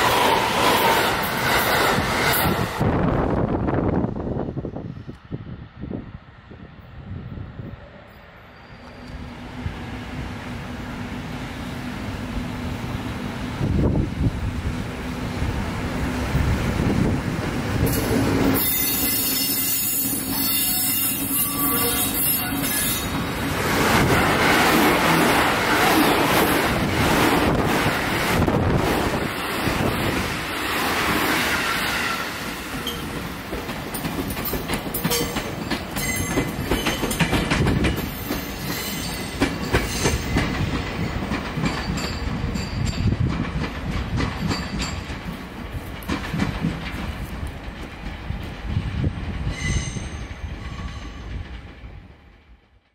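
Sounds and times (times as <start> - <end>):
electric train passing: 0.0 - 52.9
wheels clattering over rail joints: 32.7 - 48.4.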